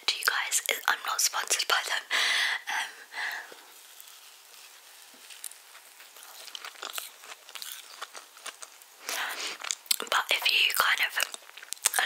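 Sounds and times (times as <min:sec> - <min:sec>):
person chewing cake: 0:03.3 - 0:12.0.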